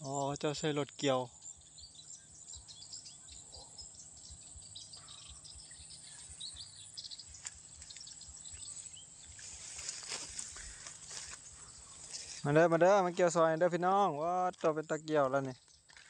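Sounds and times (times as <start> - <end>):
small birds chirping: 0.0 - 16.0
high insect buzz: 3.9 - 12.5.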